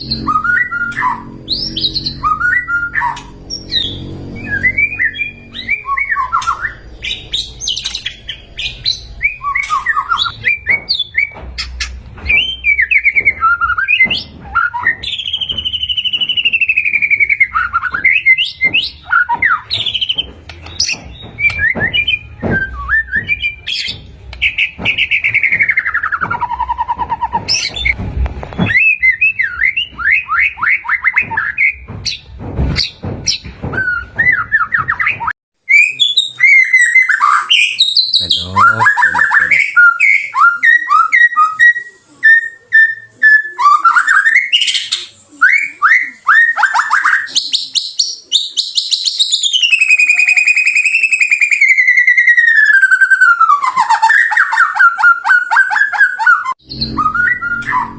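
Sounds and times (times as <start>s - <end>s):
bird singing whistles and trills: 0.0s - 28.0s, 32.8s - 57.9s.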